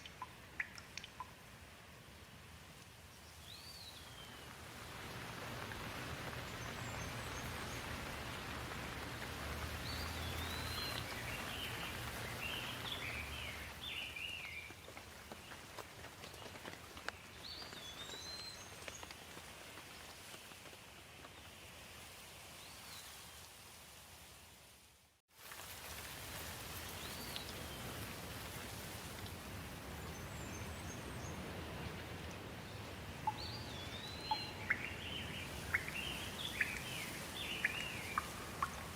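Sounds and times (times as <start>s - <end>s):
steady rain falling: 0.0s - 38.9s
bird chirps: 33.3s - 38.9s.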